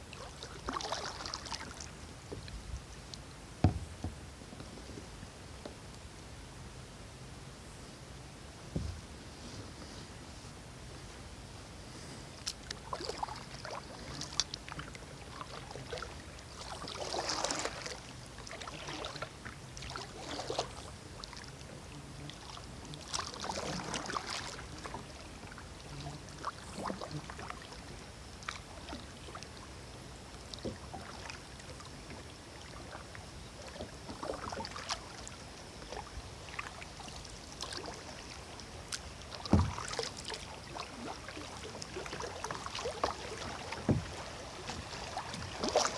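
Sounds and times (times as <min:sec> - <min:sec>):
kayak paddle splashing in water: 0:00.1 - 0:02.0, 0:12.4 - 0:29.8, 0:30.4 - 0:45.9
low knock: 0:03.6 - 0:04.2.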